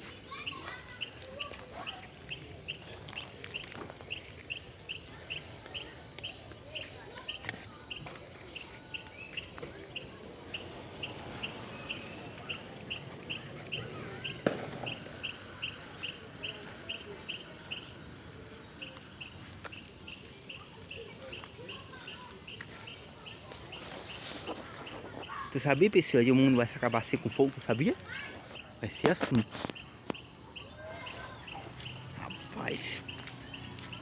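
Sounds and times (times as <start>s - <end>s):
crickets chirping: 0.0s - 34.0s
steady high insect tone: 0.0s - 34.0s
sharp crack: 10.6s - 15.3s.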